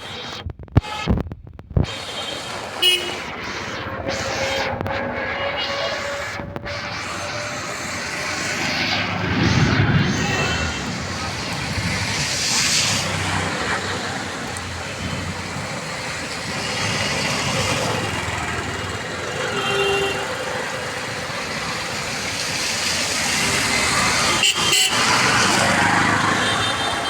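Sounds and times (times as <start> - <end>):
road traffic: 0.0 - 27.0
rain falling: 10.2 - 19.3, 20.3 - 24.4.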